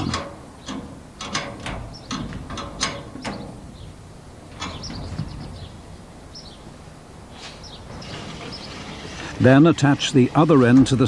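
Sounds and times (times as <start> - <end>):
metallic clicks of tools and bolts: 0.0 - 3.5.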